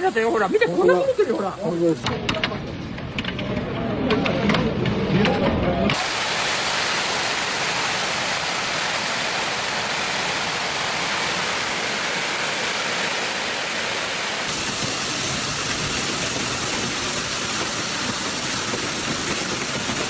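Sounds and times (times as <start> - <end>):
heavy torrential rain: 0.0 - 2.1, 5.9 - 20.0.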